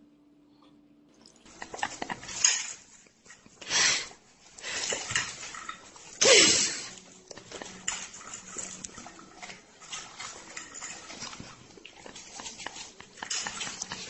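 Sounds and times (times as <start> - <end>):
dog eating: 1.3 - 14.0
cutlery scraping on a plate: 7.4 - 14.0.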